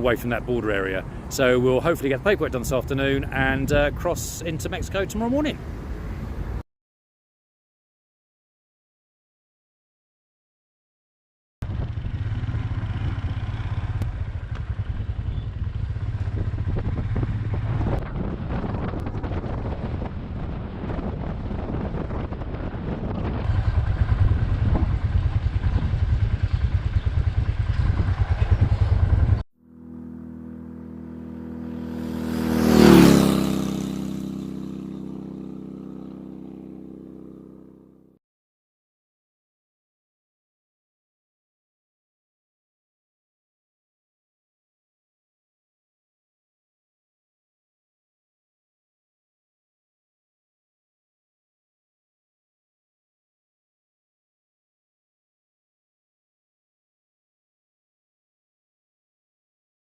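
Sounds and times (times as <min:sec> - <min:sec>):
motorcycle engine running: 0:11.6 - 0:38.2
vehicle passing by: 0:11.7 - 0:20.2, 0:23.3 - 0:37.9.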